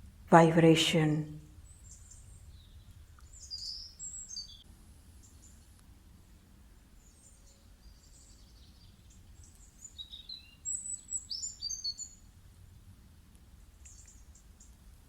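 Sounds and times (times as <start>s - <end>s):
birds chirping and whistling: 3.3s - 4.6s, 9.9s - 12.1s.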